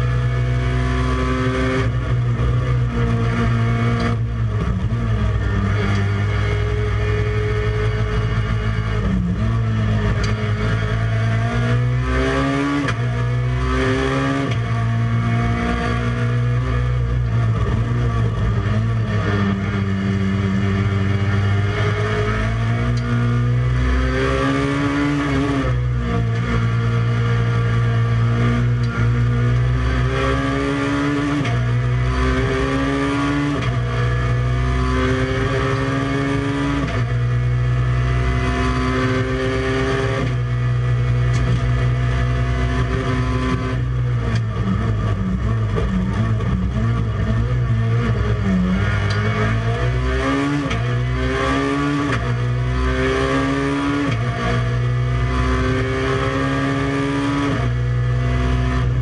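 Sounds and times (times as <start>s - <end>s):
race car engine at full throttle: 0.0s - 59.0s.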